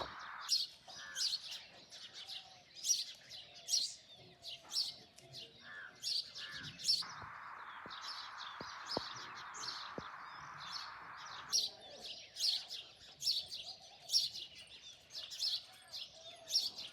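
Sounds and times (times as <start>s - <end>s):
small birds chirping: 0.0s - 16.9s
steady hiss: 7.1s - 11.5s.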